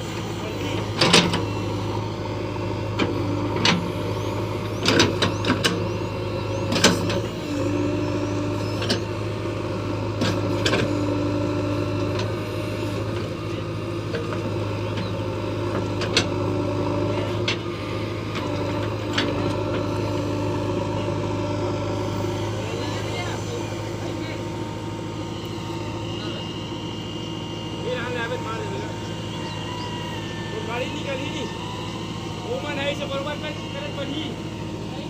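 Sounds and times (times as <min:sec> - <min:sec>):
diesel engine running: 0:00.0 - 0:35.0
machine whine: 0:17.1 - 0:35.0.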